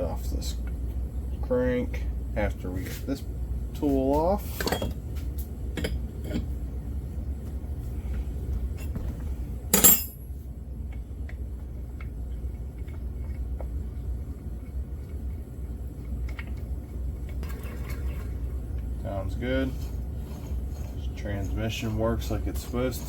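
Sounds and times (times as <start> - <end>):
steady low hum: 0.0 - 23.0
metal tools clinking: 4.6 - 5.0, 9.8 - 10.2.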